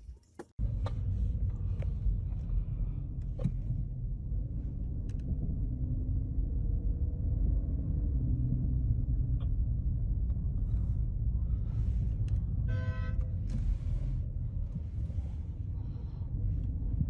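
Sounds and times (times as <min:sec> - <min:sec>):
car driving on road: 0:00.6 - 0:17.0
car horn honk: 0:12.6 - 0:13.4.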